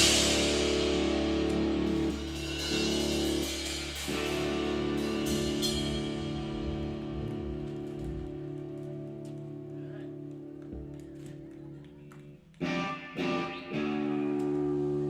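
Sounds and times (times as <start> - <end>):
cymbal wash: 0.0 - 10.2
rock band closing chord: 0.0 - 10.4.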